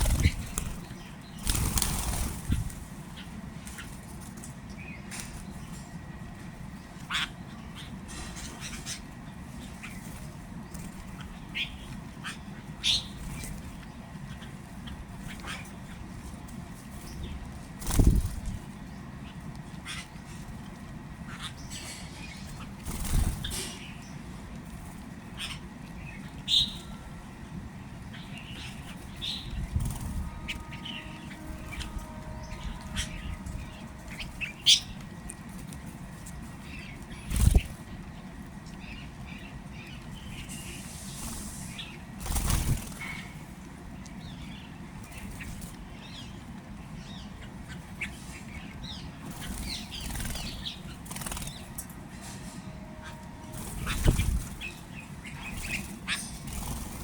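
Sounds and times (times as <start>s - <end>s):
loud rustling bursts: 0.0s - 2.9s, 40.5s - 43.1s
small birds chirping: 0.0s - 57.0s.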